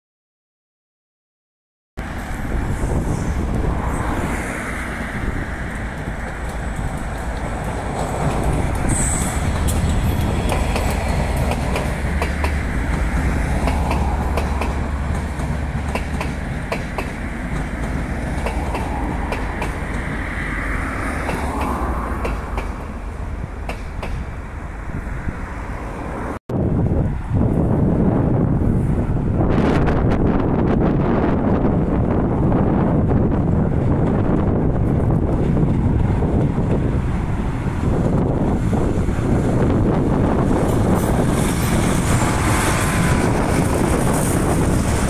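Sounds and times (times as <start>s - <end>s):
passenger train rumbling past: 2.0s - 45.0s
wheels clicking over rail joints: 5.6s - 24.3s
high wheel squeal: 8.8s - 10.5s.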